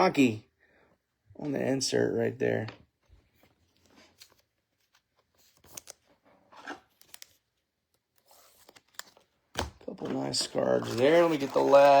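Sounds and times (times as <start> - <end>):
trading cards rustling and clicking: 3.3 - 12.0.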